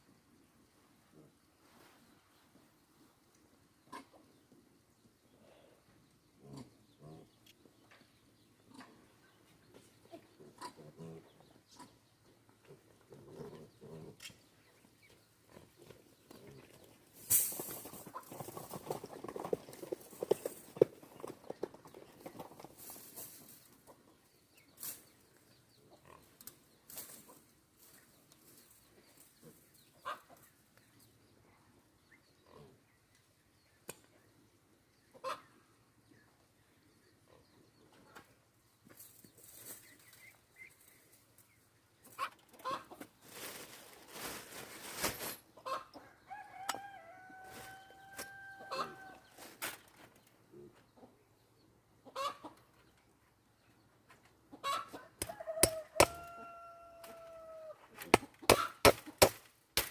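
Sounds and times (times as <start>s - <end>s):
chickens clucking: 3.9s - 4.6s, 6.5s - 30.7s, 35.0s - 36.4s, 37.2s - 44.6s, 45.5s - 59.3s
rooster crowing: 46.3s - 49.2s, 55.0s - 57.8s.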